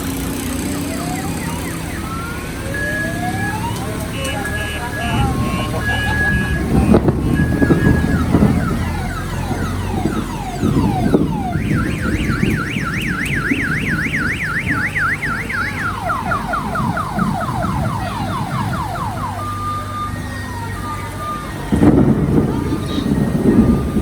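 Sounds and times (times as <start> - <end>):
vehicle alarm cycling tones: 0.0 - 24.0
low rumble: 4.9 - 19.6.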